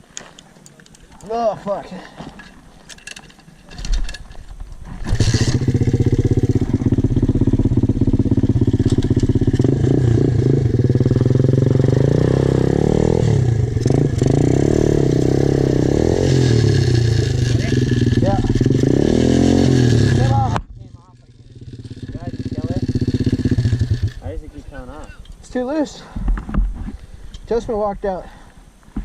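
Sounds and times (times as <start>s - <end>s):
small motorbike engine revving: 5.0s - 20.6s, 21.2s - 24.2s.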